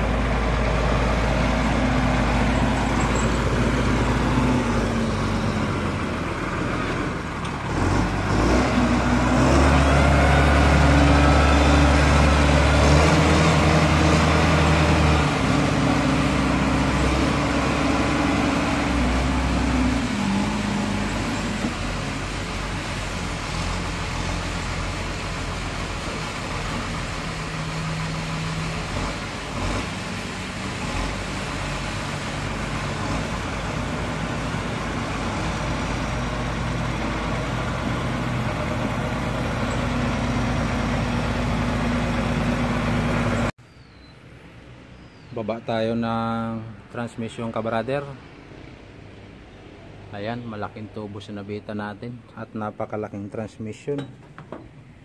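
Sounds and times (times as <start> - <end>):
wheel loader diesel engine: 0.0 - 43.6.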